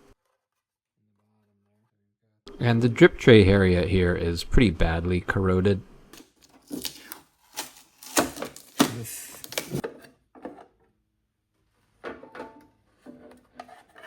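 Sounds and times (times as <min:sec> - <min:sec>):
knocks and clatters of machine parts: 0:12.0 - 0:14.0.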